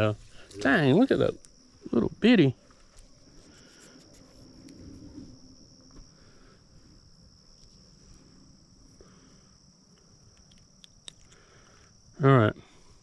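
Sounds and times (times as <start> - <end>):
crickets chirring: 0.0 - 13.0
soft rustle: 2.6 - 8.5.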